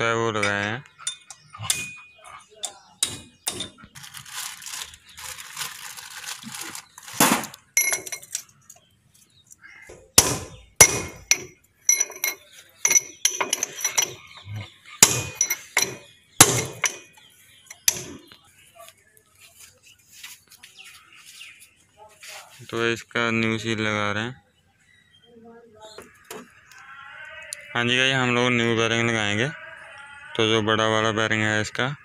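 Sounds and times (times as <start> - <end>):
metal-on-metal strikes and clinks: 0.4 - 3.8, 7.8 - 8.5, 10.2 - 14.4, 15.0 - 17.2.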